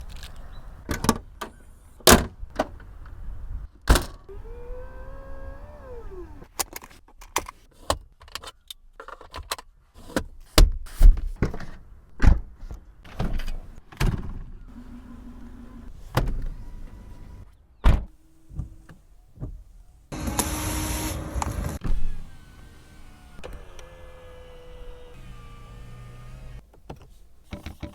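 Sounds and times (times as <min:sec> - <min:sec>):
electric motor hum: 0:04.3 - 0:06.5, 0:20.1 - 0:26.6.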